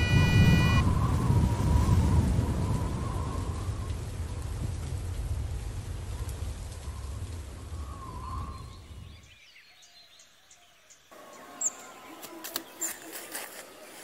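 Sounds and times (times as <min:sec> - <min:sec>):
birds chirping: 0:00.0 - 0:01.0, 0:07.8 - 0:14.0
low rumble: 0:00.0 - 0:09.2
rain: 0:00.0 - 0:12.6
rural ambience: 0:00.0 - 0:14.0.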